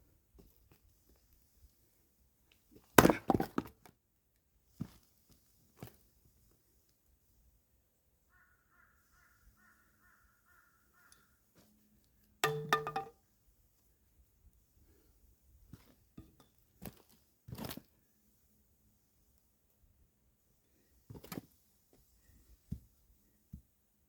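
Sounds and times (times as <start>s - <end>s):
firewood knocking together: 3.0s - 3.7s, 12.4s - 13.1s.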